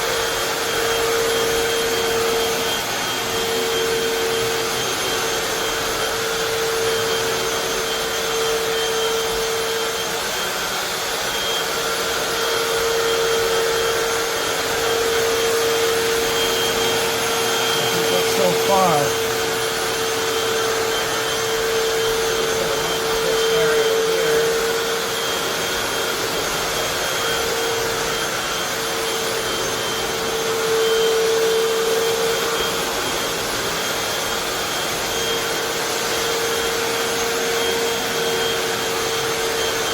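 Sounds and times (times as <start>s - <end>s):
floor cleaner suction motor whooshing: 0.0s - 39.9s.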